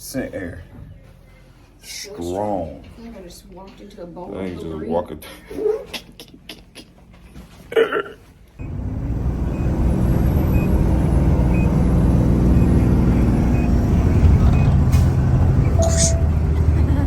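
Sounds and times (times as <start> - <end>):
vehicle engine and road noise: 8.6 - 17.0
faint high beep: 15.8 - 16.4.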